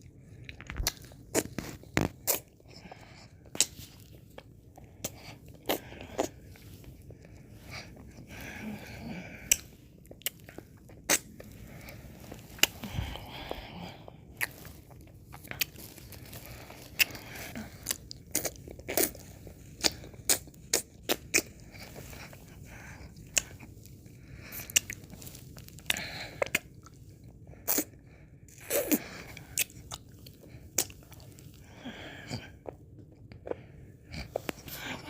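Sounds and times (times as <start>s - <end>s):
soft licking: 0.0s - 28.0s
wet mouth smacks while eating: 3.5s - 3.8s.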